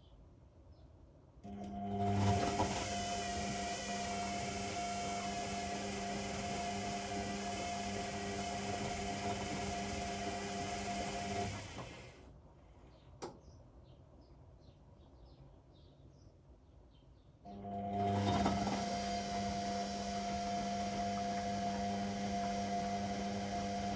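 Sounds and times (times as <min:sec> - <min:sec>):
washing machine motor whine: 0:01.5 - 0:12.2, 0:17.5 - 0:23.9.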